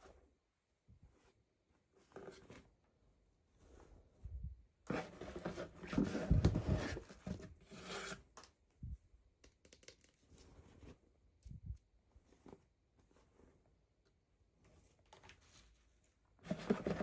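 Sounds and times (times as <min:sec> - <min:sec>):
clicks and taps of handling: 0:09.4 - 0:10.2.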